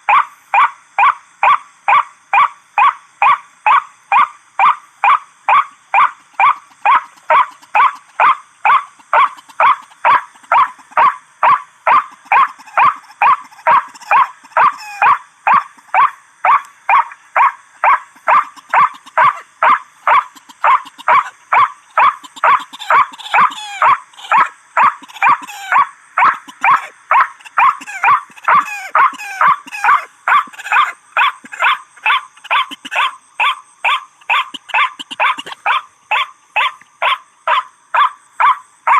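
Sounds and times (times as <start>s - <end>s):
waterhen calling: 6.2s - 37.2s.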